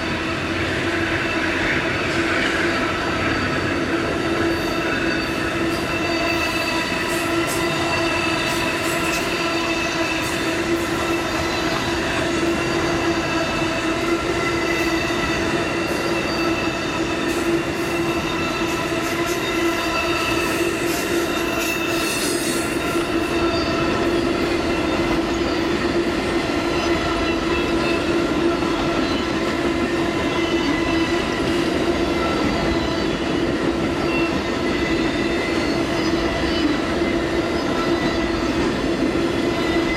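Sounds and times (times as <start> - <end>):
high-pitched wheel squeal: 1.3 - 25.9.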